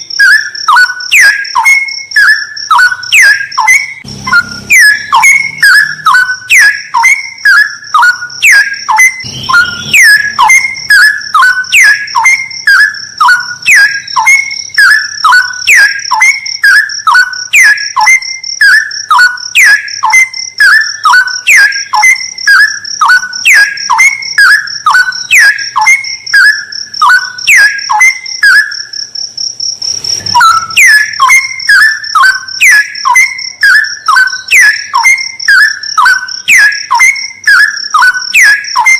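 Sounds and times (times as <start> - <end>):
bird singing whistled notes: 0.0 - 29.0, 30.2 - 38.9
high-pitched buzz: 3.9 - 7.0, 8.2 - 14.6.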